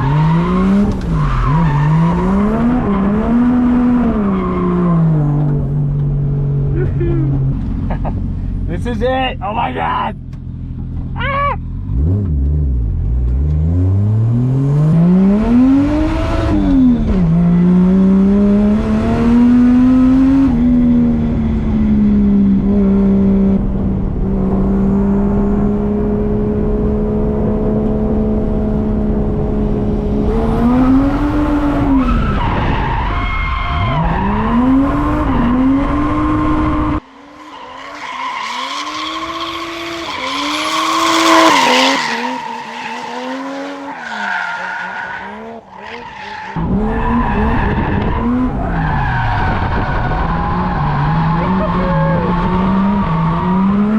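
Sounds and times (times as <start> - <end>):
car engine revving hard: 11.8 - 32.8, 33.8 - 37.0, 38.6 - 43.9, 46.5 - 53.9.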